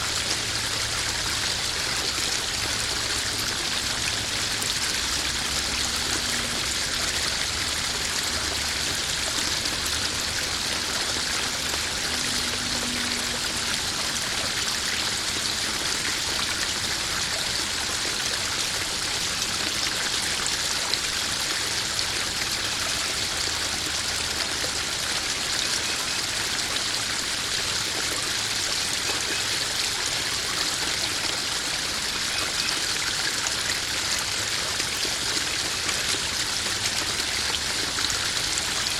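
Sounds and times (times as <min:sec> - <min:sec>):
pond waterfall splashing: 0:00.0 - 0:38.9.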